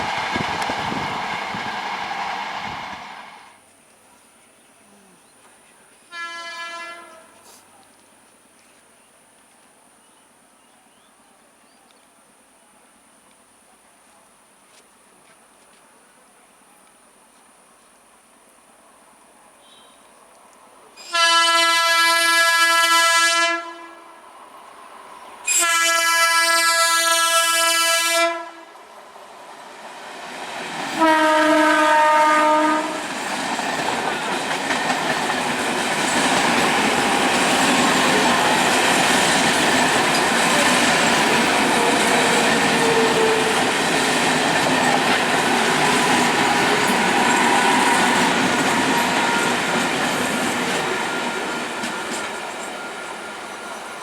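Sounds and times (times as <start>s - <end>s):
train wheels rushing on rails: 0.0s - 3.6s, 28.7s - 54.0s
train horn blasts: 6.1s - 7.5s, 19.6s - 20.0s, 21.0s - 24.2s, 25.5s - 28.8s, 30.9s - 33.1s.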